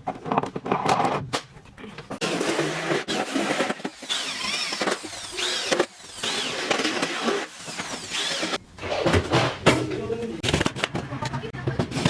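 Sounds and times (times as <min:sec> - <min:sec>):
power tool squealing: 0:02.6 - 0:09.0.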